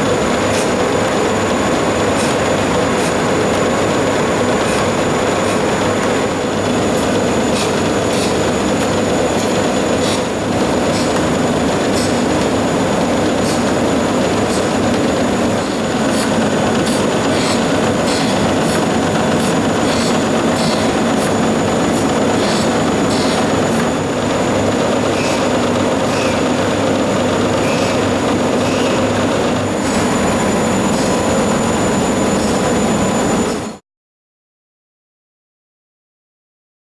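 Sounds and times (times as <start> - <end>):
grinder mechanical hum: 0.0 - 33.8
high steady whine: 0.0 - 33.8.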